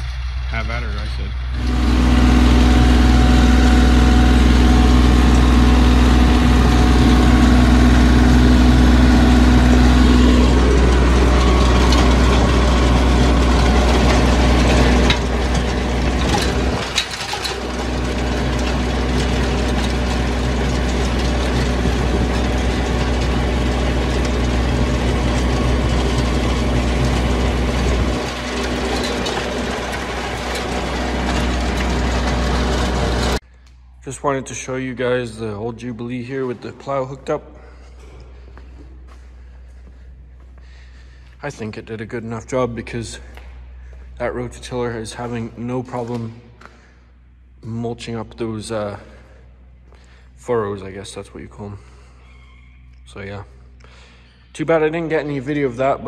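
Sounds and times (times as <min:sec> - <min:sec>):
tractor engine running under load: 0:00.0 - 0:33.4.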